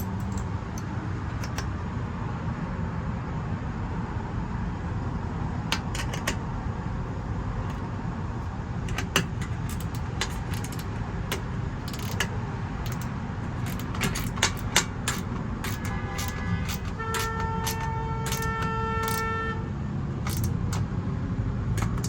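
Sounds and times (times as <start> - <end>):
metal bolts and nuts clinking: 0.0 - 1.7, 5.6 - 6.4, 8.4 - 19.4, 20.1 - 20.9, 21.8 - 22.0.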